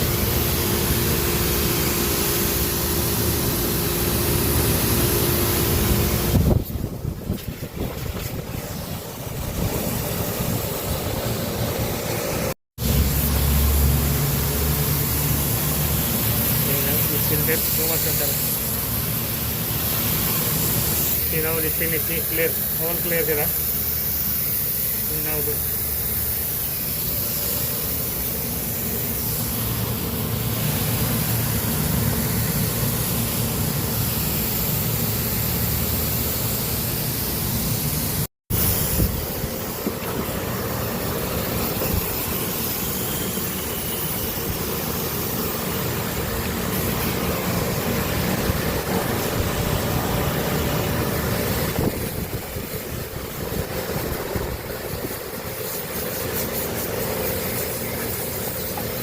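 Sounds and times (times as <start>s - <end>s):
machinery humming: 38.5s - 55.6s.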